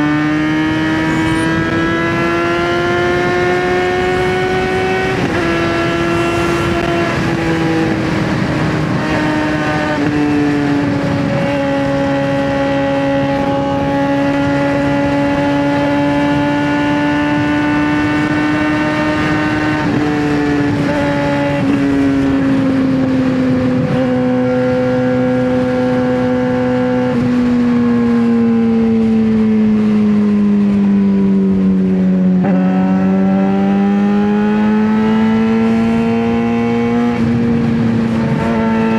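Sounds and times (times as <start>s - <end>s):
motorcycle engine at high revs: 0.0s - 38.9s.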